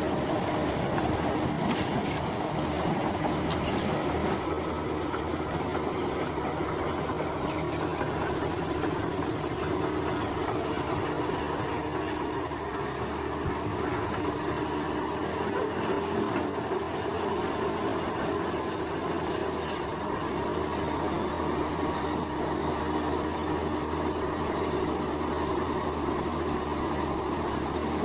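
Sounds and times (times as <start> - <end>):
diesel engine running: 0.0 - 28.0
insects chirping: 4.0 - 28.0.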